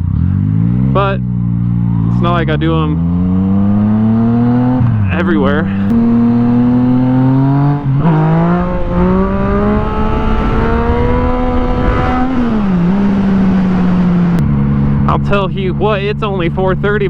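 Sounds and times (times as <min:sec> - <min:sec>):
motorcycle engine accelerating: 0:00.0 - 0:17.0
wind rush: 0:03.6 - 0:15.4.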